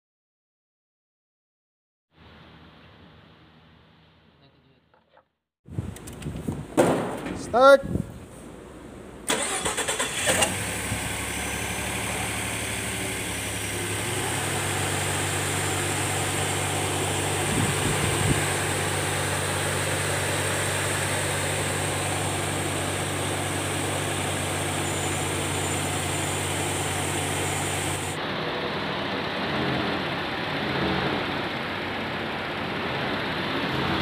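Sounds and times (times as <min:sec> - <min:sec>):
engine cranking on starter: 0:09.2 - 0:14.3
engine idling: 0:09.2 - 0:34.0.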